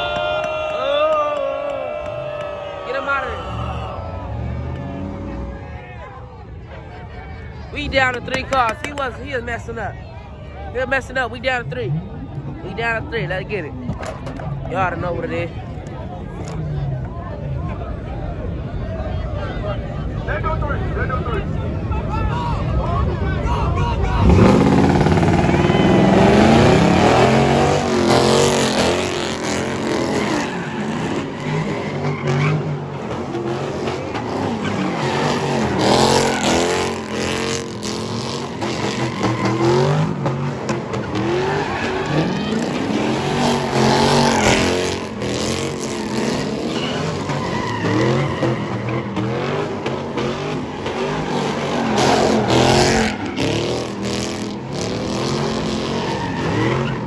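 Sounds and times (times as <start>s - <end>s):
car engines revving: 0.0s - 57.0s
tyres squealing: 23.7s - 57.0s.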